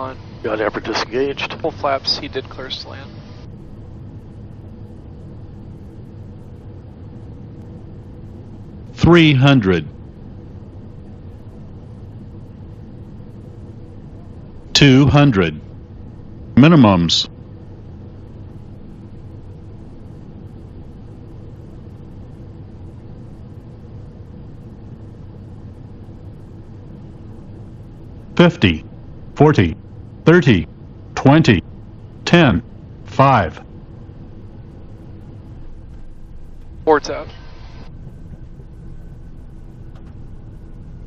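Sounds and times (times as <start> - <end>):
jet cockpit engine rumble: 0.0 - 41.0
low steady hum: 0.0 - 41.0
steady tones: 27.4 - 41.0.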